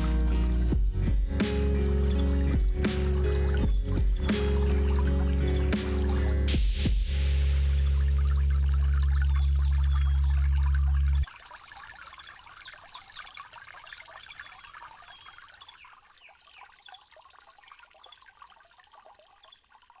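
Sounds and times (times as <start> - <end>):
loud low hum: 0.0 - 11.2
water trickling: 0.0 - 20.0.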